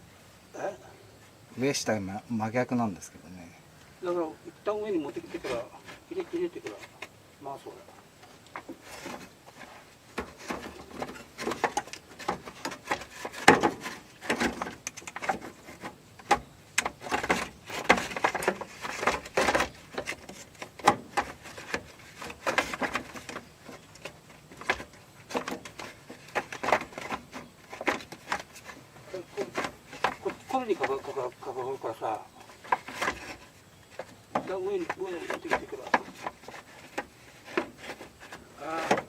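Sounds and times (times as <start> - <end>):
fan assembly knocking and scraping: 4.7 - 7.2, 7.8 - 39.0.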